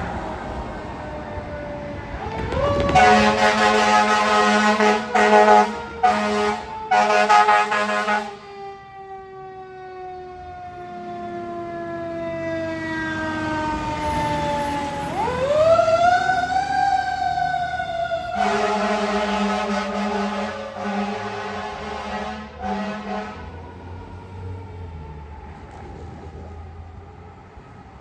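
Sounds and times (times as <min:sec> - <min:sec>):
fire engine siren wailing: 0:00.0 - 0:28.0
air horn blasts: 0:02.8 - 0:08.5, 0:18.3 - 0:23.5.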